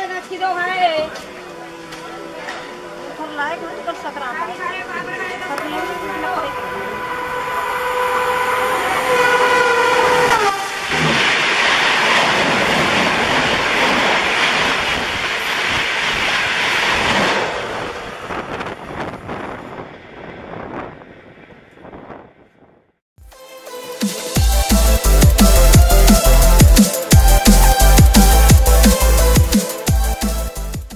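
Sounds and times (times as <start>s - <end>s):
train horn: 0.0s - 11.2s
train rushing past: 0.0s - 22.7s.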